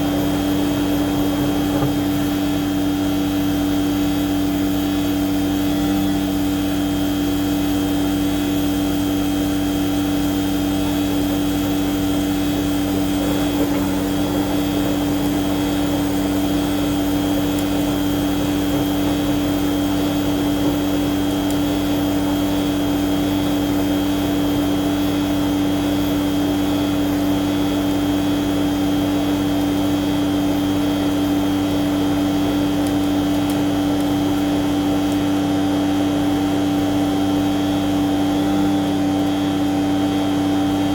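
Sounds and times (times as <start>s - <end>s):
machine humming with high whine: 0.0s - 40.9s.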